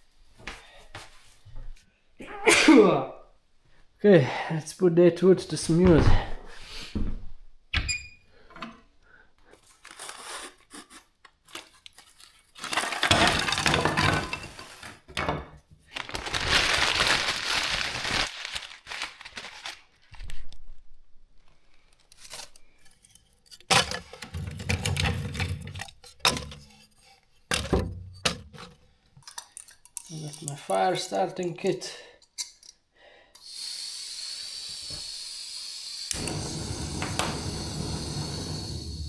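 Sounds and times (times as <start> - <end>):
firewood cracking and tearing: 15.9 - 19.9.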